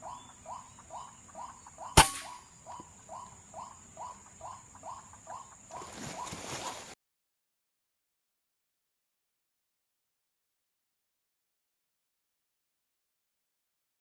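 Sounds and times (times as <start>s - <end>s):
air rifle shot: 2.0s - 2.4s.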